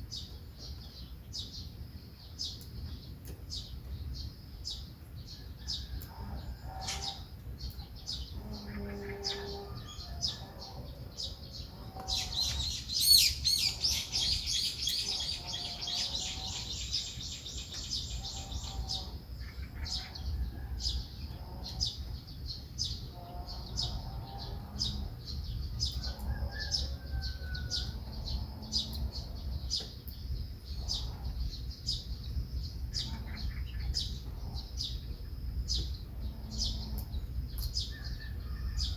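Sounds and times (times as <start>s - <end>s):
rapid bird twittering song: 0.0s - 38.9s
songbirds chirping: 0.0s - 38.9s.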